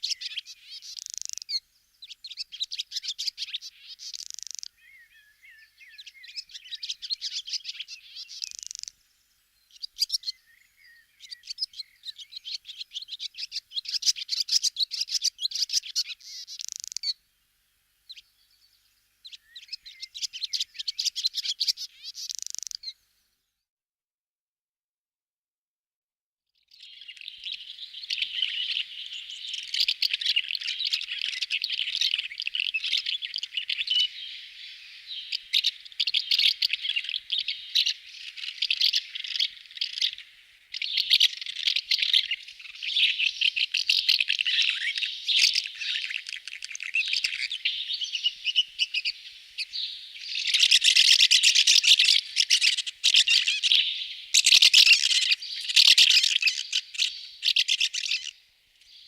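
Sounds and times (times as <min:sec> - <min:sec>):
birds chirping and twittering: 0:00.0 - 0:17.2, 0:18.0 - 0:23.6, 0:26.6 - 0:59.0.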